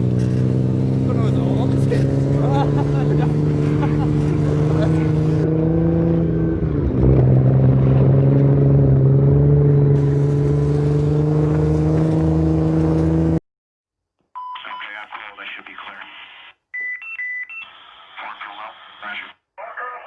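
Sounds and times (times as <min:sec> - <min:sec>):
vehicle engine humming: 0:00.0 - 0:13.4.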